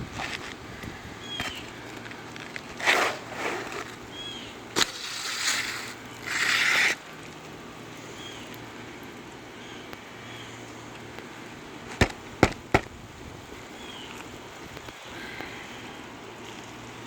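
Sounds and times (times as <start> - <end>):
roof shingles scraping: 1.3 - 7.5, 11.9 - 13.0
sharp knock: 12.0 - 12.9.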